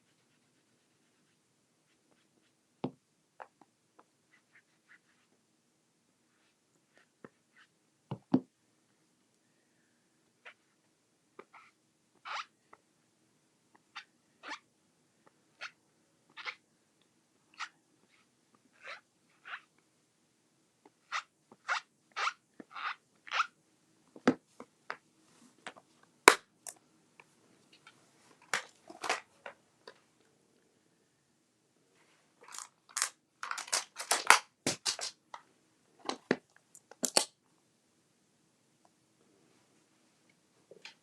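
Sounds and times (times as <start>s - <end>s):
paper crinkling: 32.4s - 35.1s.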